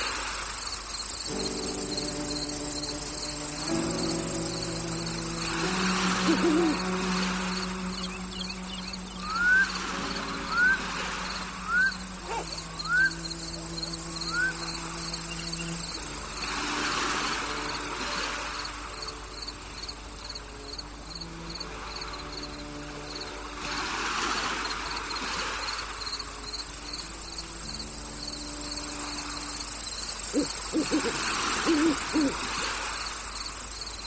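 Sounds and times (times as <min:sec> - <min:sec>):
crickets chirring: 0:00.0 - 0:34.0
fast pulsing insect chirp: 0:00.0 - 0:34.0
soft held music chords: 0:01.3 - 0:23.6
short rising whistled calls: 0:04.7 - 0:13.4, 0:14.2 - 0:15.8.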